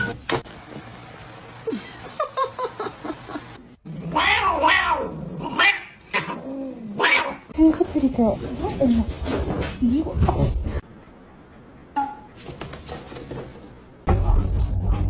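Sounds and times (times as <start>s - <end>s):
cat meowing: 4.1s - 6.4s.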